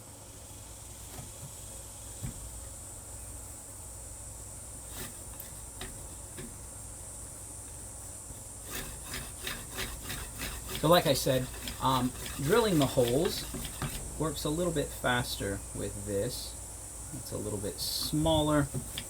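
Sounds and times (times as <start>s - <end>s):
steady hiss: 0.0s - 19.0s
drill bit scraping wood: 4.8s - 6.5s, 8.6s - 14.4s.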